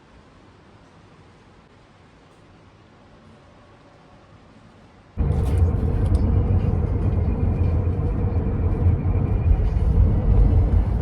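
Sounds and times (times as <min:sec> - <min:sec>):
vehicle rumble: 0:05.2 - 0:11.0.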